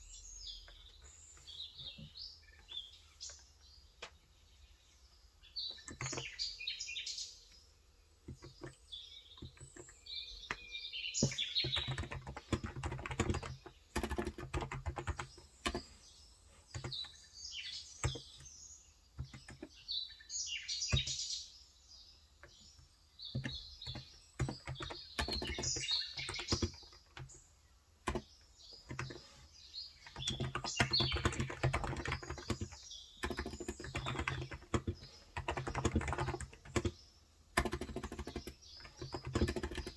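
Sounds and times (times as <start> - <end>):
small birds chirping: 0.0 - 39.9
typing on keyboard: 5.8 - 6.4, 8.2 - 16.0, 16.7 - 17.2, 18.0 - 18.5, 19.2 - 19.7, 20.9 - 21.2, 23.3 - 27.4, 28.0 - 29.2, 30.0 - 39.9.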